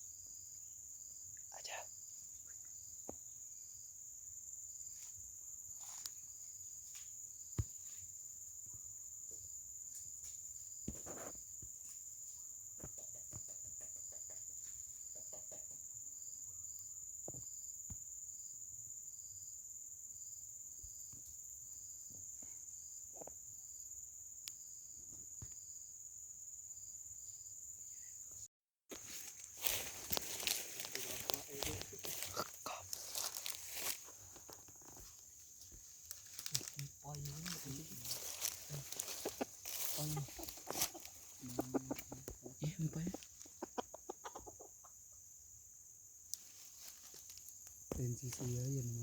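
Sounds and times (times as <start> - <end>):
insect chorus: 0.0 - 49.0
faint clicks and rustles: 29.0 - 42.4.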